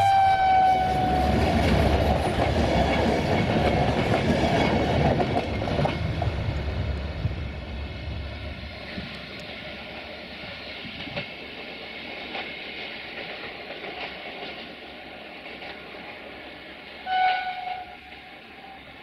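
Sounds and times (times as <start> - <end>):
locomotive horn blast: 0.0 - 1.4, 17.0 - 18.8
train rumbling: 0.0 - 19.0
wheels clicking over rail joints: 9.0 - 18.3.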